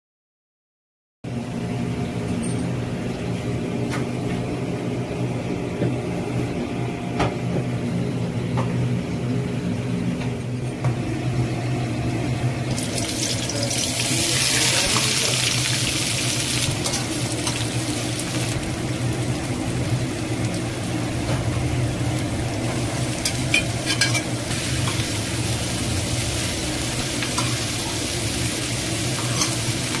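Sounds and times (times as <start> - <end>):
steady low hum: 1.4 - 14.3, 16.0 - 30.0
onions sizzling in oil: 12.7 - 30.0.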